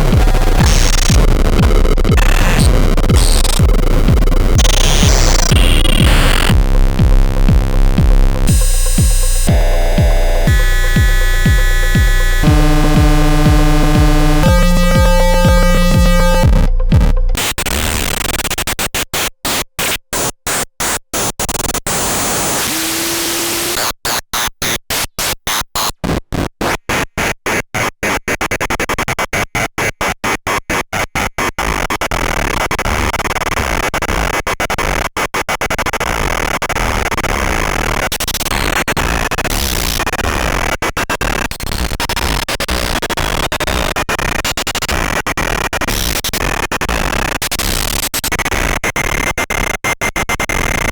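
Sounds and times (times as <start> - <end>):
harsh hissing synthesizer noise: 0.0 - 17.6.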